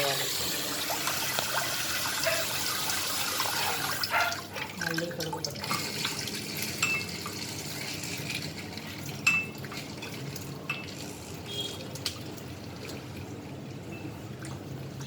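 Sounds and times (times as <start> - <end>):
water sloshing in a pot: 0.0 - 15.0
clinks against a pot: 6.8 - 7.3, 9.2 - 11.0.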